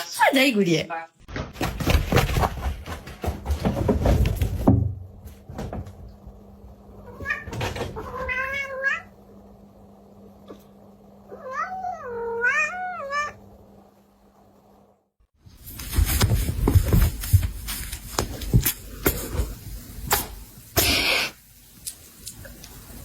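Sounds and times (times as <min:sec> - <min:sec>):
cat meowing: 0:07.0 - 0:09.1, 0:11.3 - 0:13.4.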